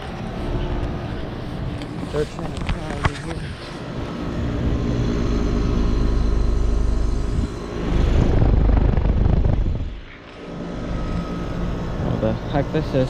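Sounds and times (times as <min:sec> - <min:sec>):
condenser fan whirring: 0:00.0 - 0:13.0
heat pump compressor hum: 0:00.0 - 0:13.0.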